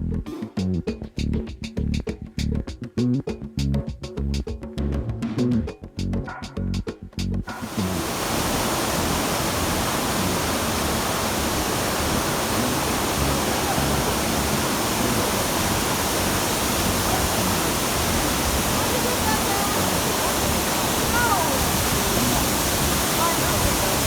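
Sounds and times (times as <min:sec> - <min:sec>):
waterfall rushing: 0:07.5 - 0:24.0.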